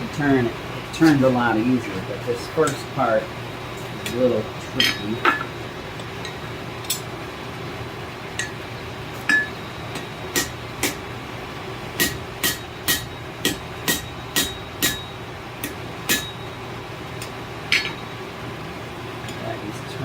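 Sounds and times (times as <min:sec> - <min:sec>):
hammer striking hot steel: 0:08.4 - 0:08.6, 0:09.2 - 0:11.1, 0:12.0 - 0:16.6, 0:17.2 - 0:18.1.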